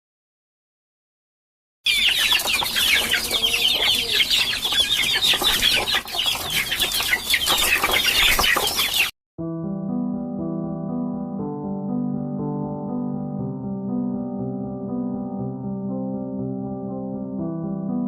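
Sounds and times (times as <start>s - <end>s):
chicks peeping: 1.9s - 9.1s
piano music: 9.4s - 18.0s.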